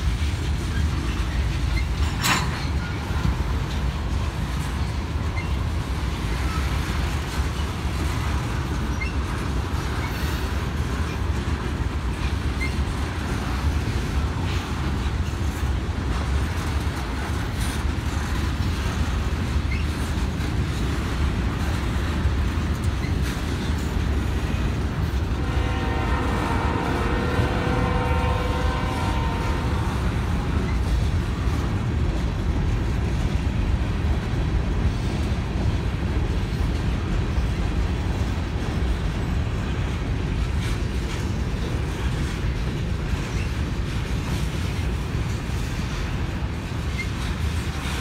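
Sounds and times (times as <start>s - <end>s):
freight train rolling past: 0.0s - 48.0s
train horn: 25.1s - 31.7s.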